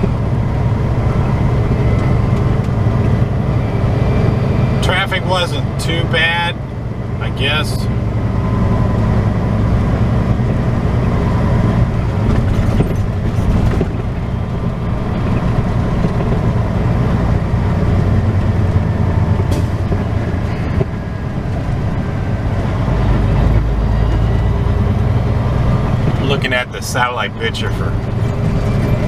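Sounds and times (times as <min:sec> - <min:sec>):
road noise: 0:00.0 - 0:29.0
truck diesel engine droning: 0:00.0 - 0:29.0.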